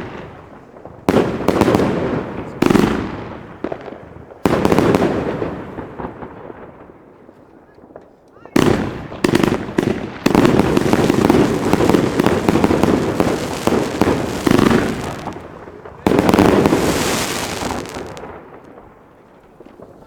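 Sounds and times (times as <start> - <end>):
fireworks rapid bangs and crackles: 0.0 - 20.0.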